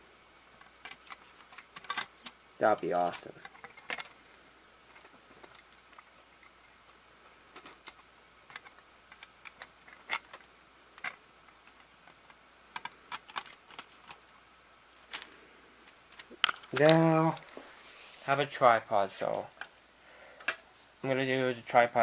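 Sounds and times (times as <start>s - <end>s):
plastic cassette parts clicking: 0.5s - 2.4s, 3.1s - 4.2s, 7.5s - 14.2s, 16.0s - 17.5s.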